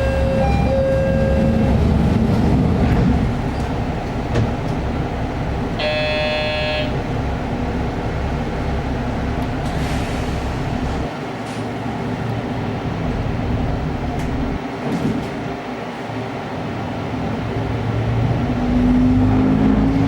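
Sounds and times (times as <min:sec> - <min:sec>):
diesel engine idling: 0:00.0 - 0:14.6.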